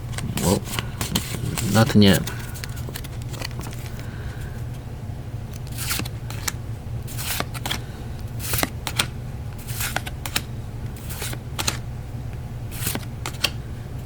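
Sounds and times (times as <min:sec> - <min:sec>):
trading cards swishing and snapping: 0:00.1 - 0:04.0, 0:05.6 - 0:07.8, 0:08.4 - 0:11.8, 0:12.7 - 0:13.6.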